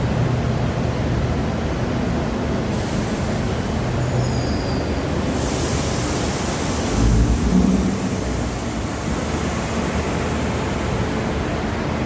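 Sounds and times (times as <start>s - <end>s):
train rumbling: 0.0s - 12.0s
hiss: 2.6s - 11.5s.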